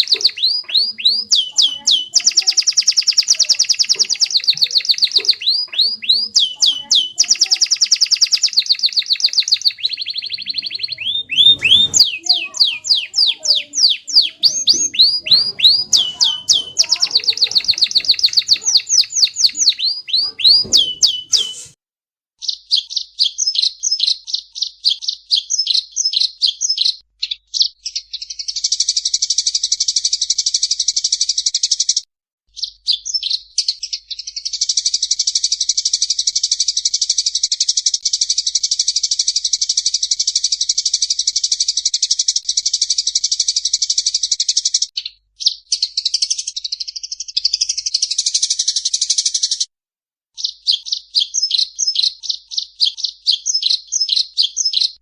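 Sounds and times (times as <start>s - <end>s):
songbird singing: 0.0s - 21.8s.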